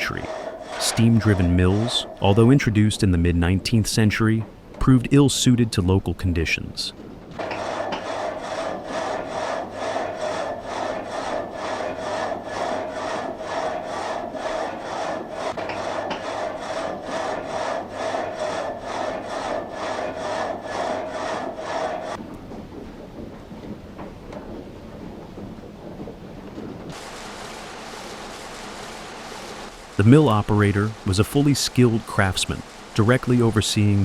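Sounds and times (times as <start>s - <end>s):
frame saw rasping through timber: 0.0s - 5.6s, 7.4s - 22.2s, 26.9s - 34.0s.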